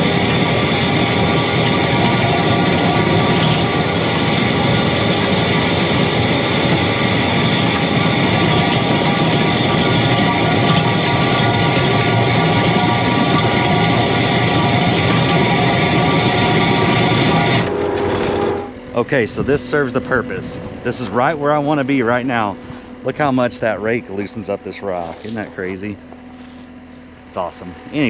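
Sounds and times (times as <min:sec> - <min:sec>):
diesel engine running: 0:00.0 - 0:28.0
rake scraping through gravel: 0:23.4 - 0:26.8.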